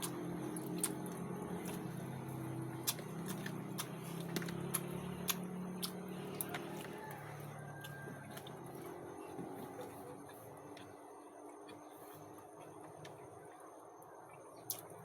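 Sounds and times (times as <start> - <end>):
chewing and utensil clicks: 0.0 - 1.9, 2.8 - 9.0
steady low hum: 0.0 - 15.0.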